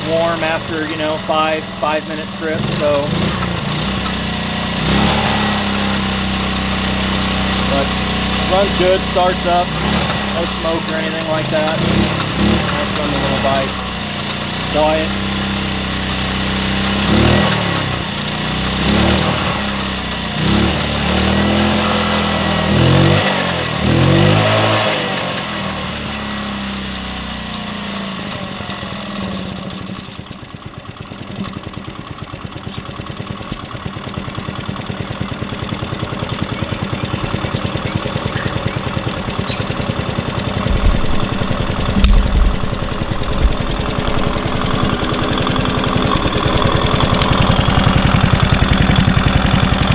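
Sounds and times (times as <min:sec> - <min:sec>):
moped engine revving and idling: 0:00.0 - 0:49.9.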